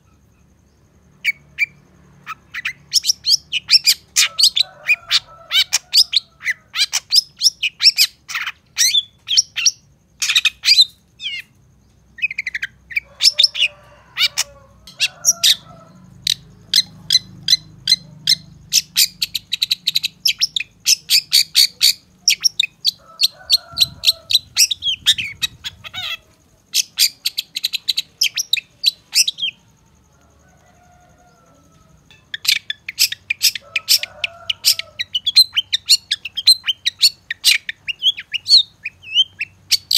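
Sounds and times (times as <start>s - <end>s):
bird singing high chirps: 12.2s - 29.6s, 32.1s - 39.9s.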